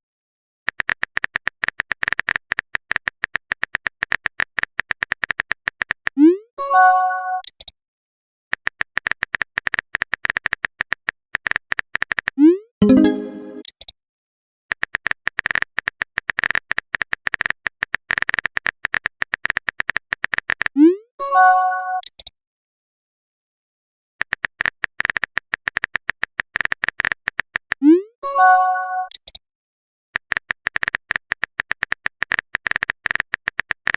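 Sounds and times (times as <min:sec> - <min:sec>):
rapid typing clicks: 0:00.7 - 0:06.2, 0:08.5 - 0:12.4, 0:14.7 - 0:20.7, 0:24.2 - 0:27.8, 0:30.2 - 0:33.9
message chime: 0:12.8 - 0:13.6, 0:28.2 - 0:29.1.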